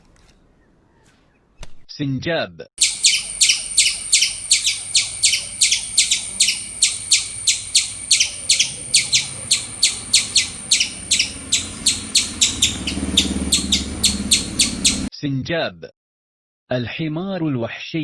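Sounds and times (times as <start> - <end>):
squirrel chirping: 2.8 - 15.1.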